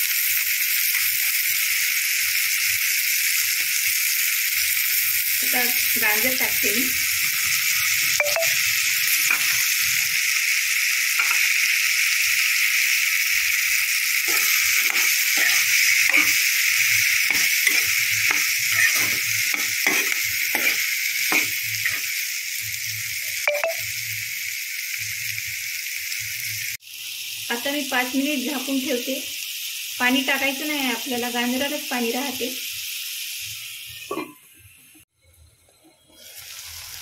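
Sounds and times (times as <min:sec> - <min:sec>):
vegetables sizzling in oil: 0:00.0 - 0:37.0
spatula scraping and tapping pan: 0:11.2 - 0:11.4, 0:14.3 - 0:16.5, 0:17.2 - 0:22.0.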